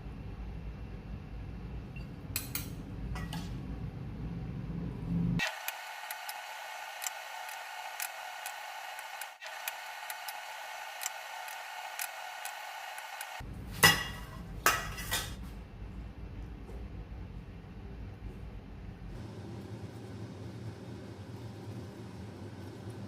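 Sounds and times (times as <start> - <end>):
steady hum: 3.0 - 13.7.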